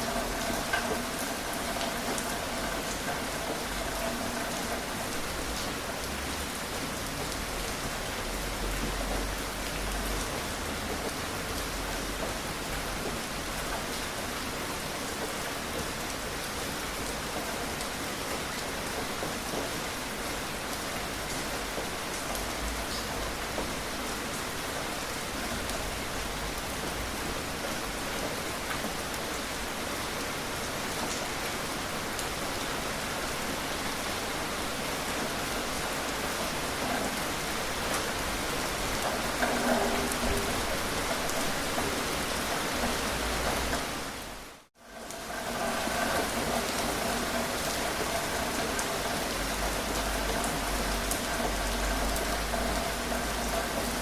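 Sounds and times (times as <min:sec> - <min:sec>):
raindrop ticks: 0:00.0 - 0:07.8, 0:36.2 - 0:43.9, 0:44.9 - 0:54.0
steady rain: 0:00.0 - 0:54.0.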